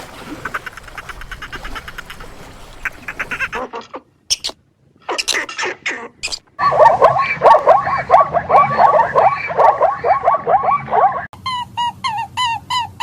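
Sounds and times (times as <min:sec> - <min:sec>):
fast repeated animal calls: 0:00.2 - 0:11.3
harsh animal calls: 0:02.8 - 0:12.6.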